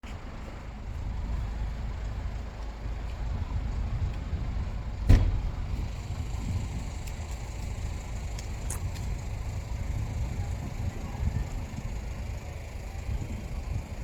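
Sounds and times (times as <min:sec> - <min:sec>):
low rumble: 0:00.2 - 0:14.0
sharp thump: 0:05.0 - 0:05.6.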